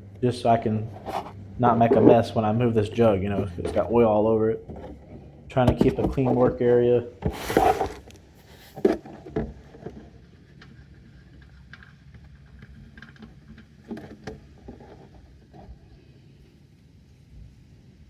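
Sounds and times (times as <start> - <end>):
faint low hum: 0.0 - 18.0
plastic jug rustling: 0.4 - 10.2
plastic jug knocking: 0.9 - 2.4, 4.6 - 8.2.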